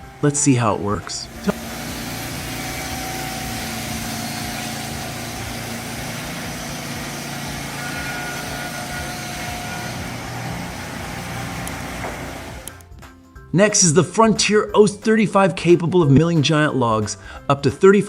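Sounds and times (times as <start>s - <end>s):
motor-driven saw running: 0.0s - 12.8s.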